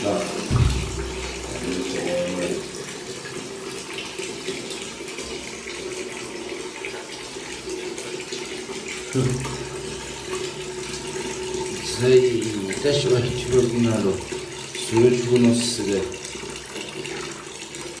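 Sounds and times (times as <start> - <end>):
falling splashing water: 0.0 - 4.1.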